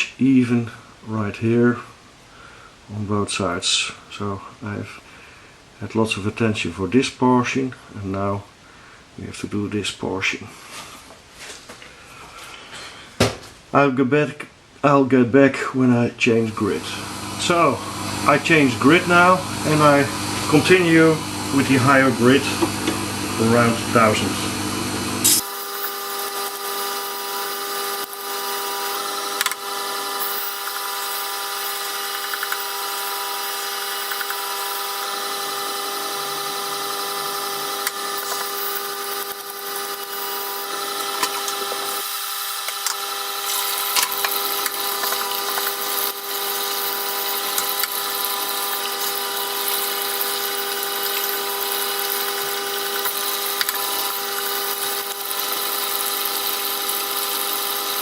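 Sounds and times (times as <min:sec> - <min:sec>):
sharpening machine motor hum: 0:16.5 - 0:58.0
knife blade grinding on stone: 0:30.2 - 0:34.8, 0:37.8 - 0:55.0.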